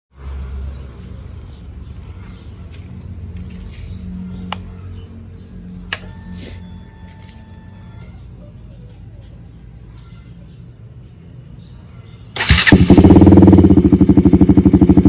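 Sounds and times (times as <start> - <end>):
motorcycle engine idling: 12.4 - 15.0.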